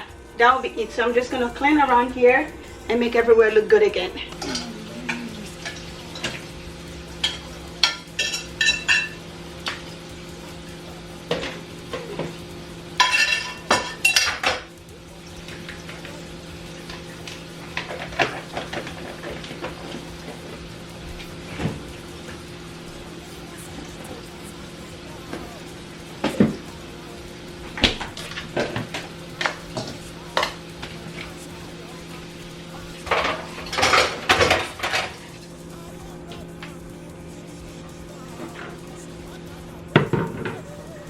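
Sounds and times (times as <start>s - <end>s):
steady low hum: 0.0s - 41.0s
dishes and utensils clattering: 4.3s - 6.5s, 7.2s - 9.8s, 13.0s - 14.7s, 16.9s - 20.6s, 33.0s - 35.2s.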